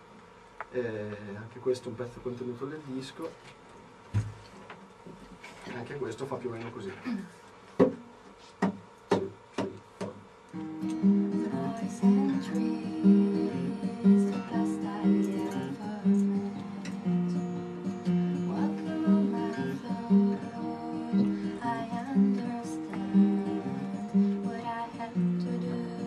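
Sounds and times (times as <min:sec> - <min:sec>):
guitar plucking and strumming: 0:10.5 - 0:26.0.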